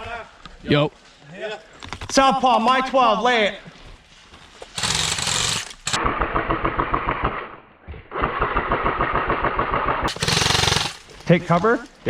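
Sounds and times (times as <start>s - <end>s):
airsoft gun firing full auto: 4.8s - 11.1s.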